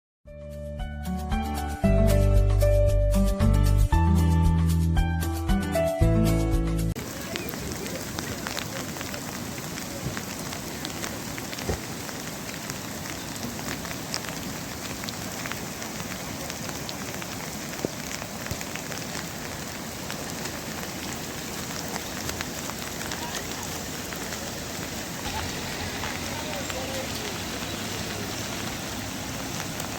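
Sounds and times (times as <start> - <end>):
steady rain falling: 7.0 - 29.9.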